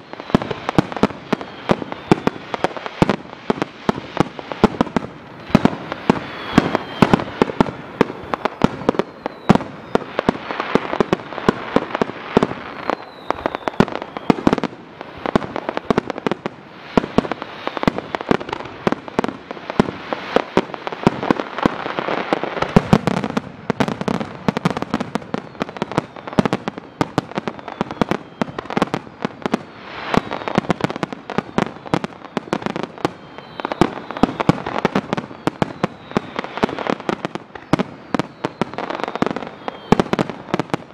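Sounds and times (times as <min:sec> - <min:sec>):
high falling whistles: 0:00.0 - 0:02.6, 0:05.4 - 0:11.5, 0:12.4 - 0:14.6, 0:16.9 - 0:18.4, 0:25.3 - 0:30.7, 0:31.3 - 0:40.2
fireworks bursts and bangs: 0:00.0 - 0:40.9
fireworks crackle: 0:00.0 - 0:40.9.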